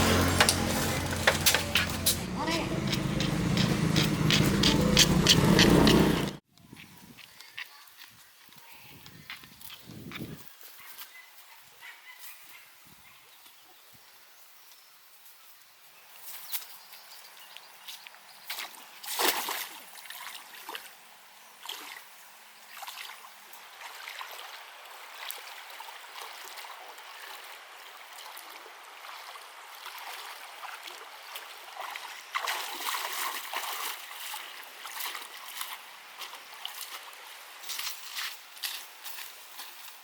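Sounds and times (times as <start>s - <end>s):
water splashing and trickling: 0.0s - 6.4s, 16.2s - 40.0s.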